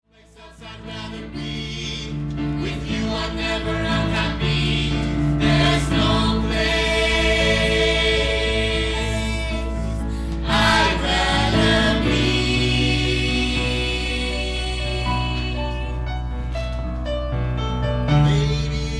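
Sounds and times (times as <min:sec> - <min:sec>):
two voices singing a duet: 0:00.1 - 0:16.1.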